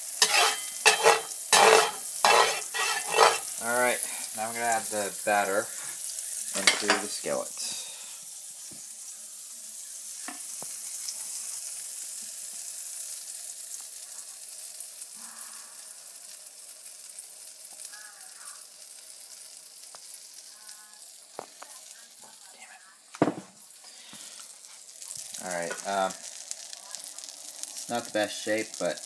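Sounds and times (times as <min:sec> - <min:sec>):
batter sizzling in skillet: 0:00.0 - 0:29.0.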